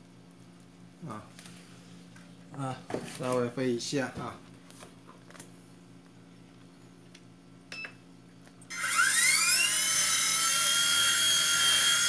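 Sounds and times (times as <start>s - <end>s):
electric motor high-pitched whine: 8.7s - 12.0s.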